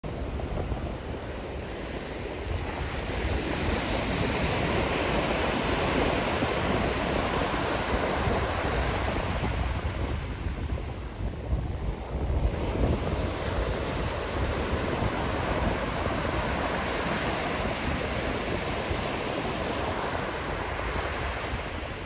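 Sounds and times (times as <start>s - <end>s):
wind rumbling on microphone: 0.0s - 22.0s
sea waves breaking on shore: 0.1s - 22.0s.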